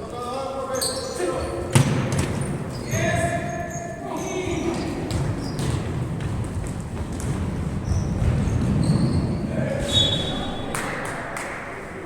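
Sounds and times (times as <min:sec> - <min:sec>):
high squeak or whistle: 0:09.9 - 0:10.5.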